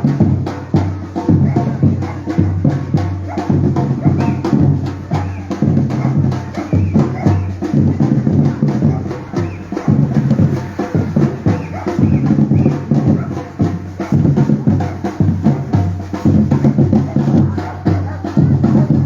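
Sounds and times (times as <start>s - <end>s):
bass drums: 0.0s - 19.0s
sharp percussion hits: 0.0s - 19.0s.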